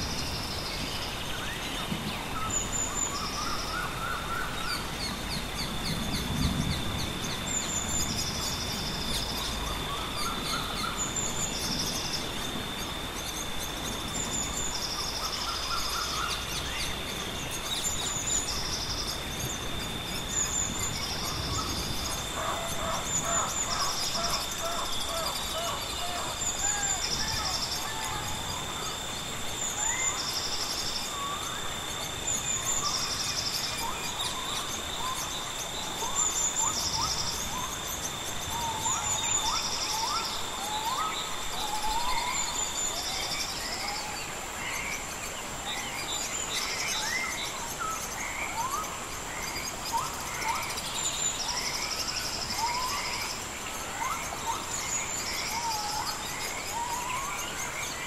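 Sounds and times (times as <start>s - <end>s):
background hiss: 0.0s - 58.0s
insects high-pitched whine: 0.0s - 58.0s
birds whistling: 17.8s - 44.9s.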